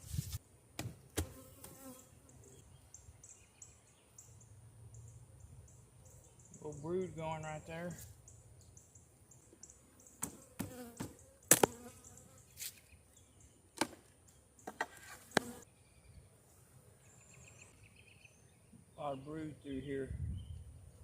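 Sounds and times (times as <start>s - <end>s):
honeybees buzzing: 10.0s - 12.5s, 15.2s - 15.7s.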